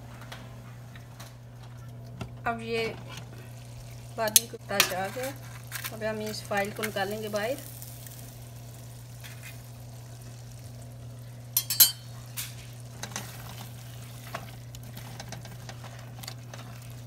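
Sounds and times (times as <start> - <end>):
steady low hum: 0.0 - 17.0
curry simmering and sizzling in pan: 3.0 - 17.0
spatula clinking against pan: 11.6 - 12.1.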